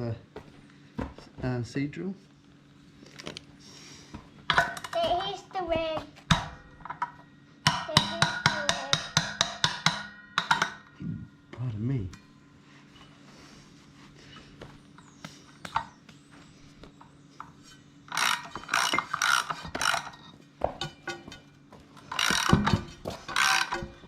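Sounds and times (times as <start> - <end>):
ratchet wrench clicking: 18.1 - 20.1, 22.1 - 23.8.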